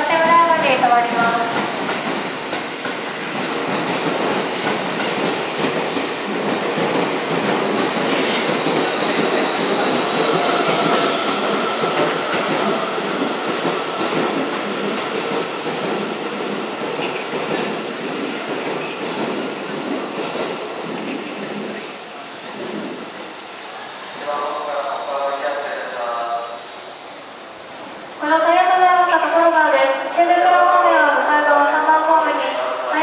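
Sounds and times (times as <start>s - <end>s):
train wheel clatter: 0.0s - 23.1s
thin steady train whine: 0.0s - 33.0s.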